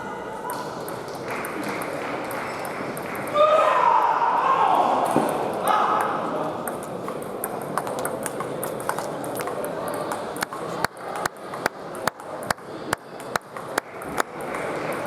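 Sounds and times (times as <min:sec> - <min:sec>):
sports hall murmur: 0:00.0 - 0:15.0
table tennis ball pinging: 0:06.0 - 0:15.0.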